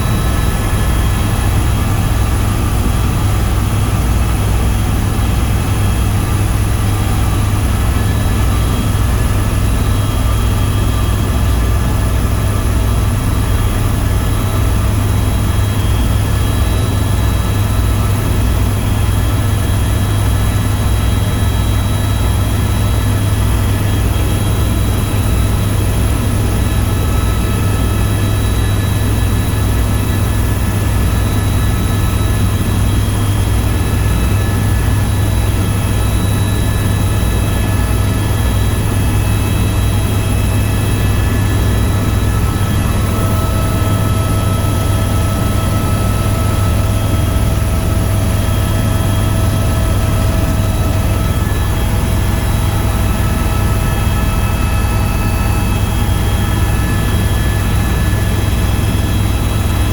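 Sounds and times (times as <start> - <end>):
helicopter drone: 0.0 - 59.9
thin high whine: 24.1 - 59.9.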